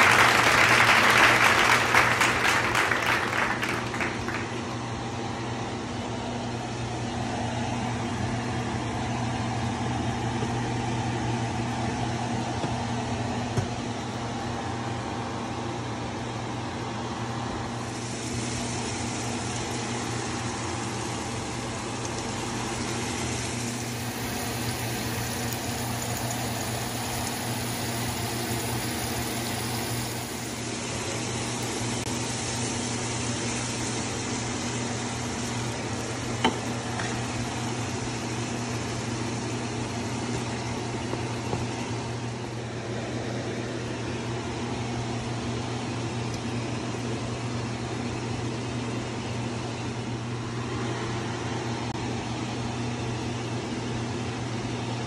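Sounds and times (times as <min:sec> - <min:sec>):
appliance electrical hum and fan: 0:00.0 - 0:55.0
bright hiss: 0:17.8 - 0:36.4.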